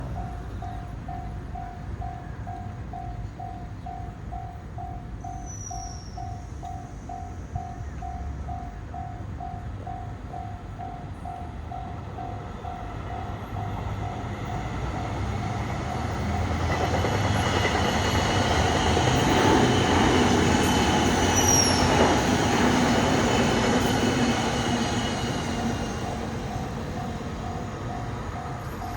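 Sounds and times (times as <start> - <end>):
train rumble: 0.0 - 28.9
high wheel squeal: 18.2 - 26.8.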